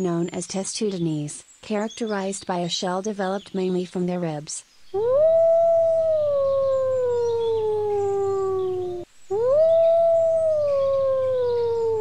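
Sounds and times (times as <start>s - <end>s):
wolf howling: 5.0s - 12.0s.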